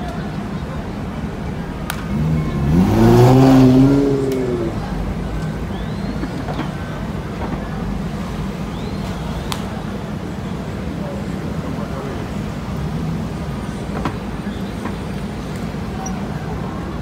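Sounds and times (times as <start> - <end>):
city traffic rumble: 0.0 - 17.0
car engine revving past: 1.9 - 5.9.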